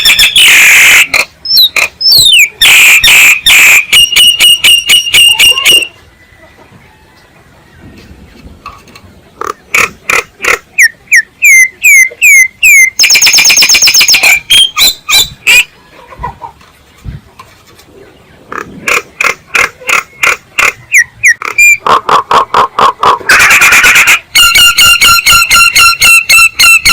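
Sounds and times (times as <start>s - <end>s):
bird rasping chatter: 0.0s - 5.9s, 9.4s - 15.6s, 18.5s - 26.9s
myna sharp calls: 0.0s - 6.0s.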